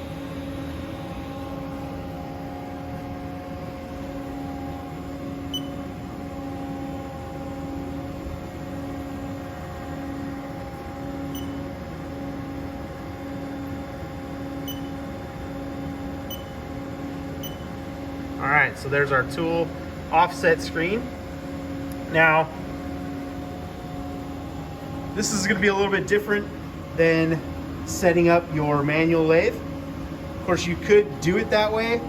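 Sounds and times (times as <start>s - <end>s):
short high key beeps: 5.5s - 5.8s, 11.3s - 11.6s, 14.7s - 15.0s, 16.3s - 16.5s, 17.4s - 17.6s
lathe humming: 22.5s - 32.0s.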